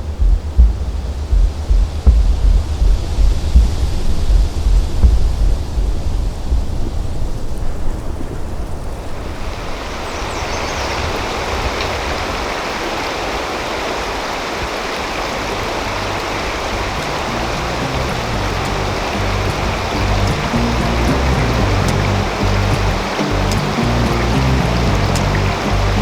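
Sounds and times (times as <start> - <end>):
low rumble: 0.0 - 8.8, 16.1 - 26.0
stream water rushing: 8.4 - 26.0.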